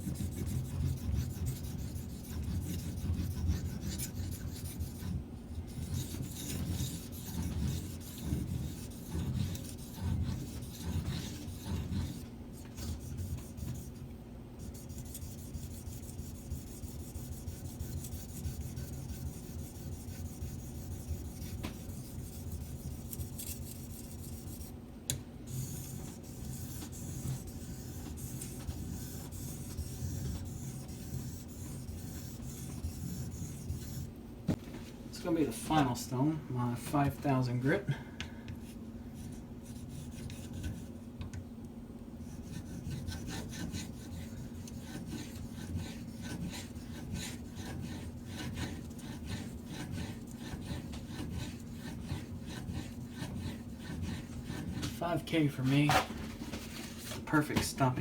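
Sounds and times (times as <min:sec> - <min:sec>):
knife rasping on whetstone: 0:00.0 - 0:14.0, 0:14.6 - 0:24.7, 0:25.5 - 0:34.1, 0:42.3 - 0:55.0.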